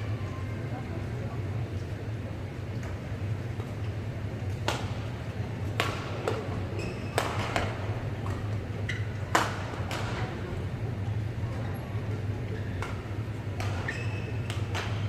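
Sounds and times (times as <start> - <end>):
low hum of sports hall: 0.0 - 15.0
rackets hitting shuttlecock: 4.5 - 10.4, 12.6 - 15.0.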